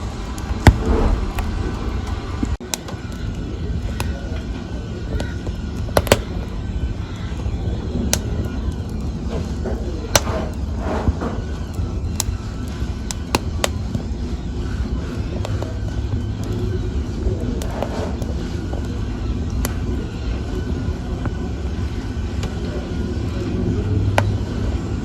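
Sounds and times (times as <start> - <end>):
fire crackling and popping: 0.0 - 25.0
wood fire rumbling: 0.0 - 25.0.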